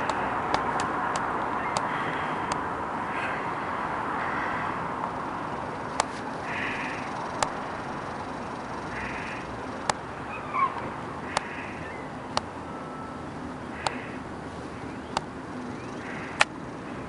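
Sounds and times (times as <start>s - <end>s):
gulls calling: 0.0s - 17.0s
outdoor city hum: 0.0s - 17.0s
sharp clicks: 16.4s - 16.6s.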